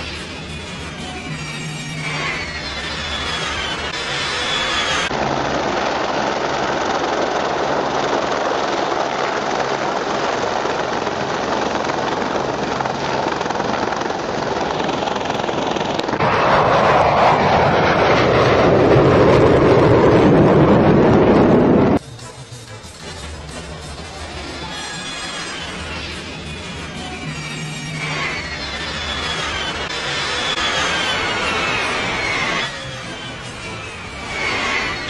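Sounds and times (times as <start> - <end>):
aircraft engine droning: 0.0 - 35.0.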